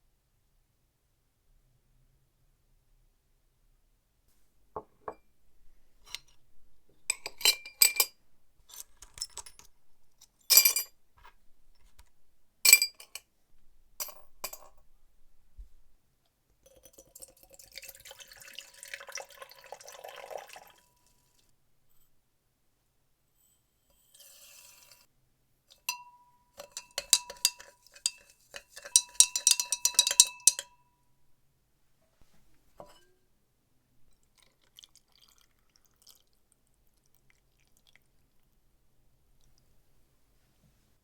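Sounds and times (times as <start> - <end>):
metal clinking on glass: 7.1 - 9.7, 14.0 - 14.8, 25.8 - 30.8, 32.8 - 33.1
liquid pouring: 17.0 - 21.2, 34.2 - 38.4.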